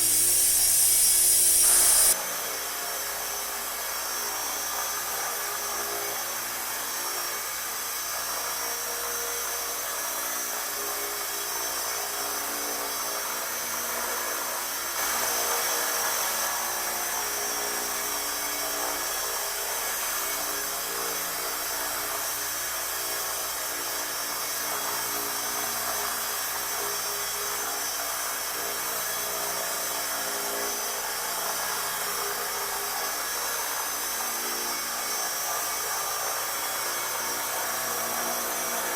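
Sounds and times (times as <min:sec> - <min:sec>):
electric motor whine: 0:00.0 - 0:02.6
helicopter rotor noise: 0:00.0 - 0:38.9.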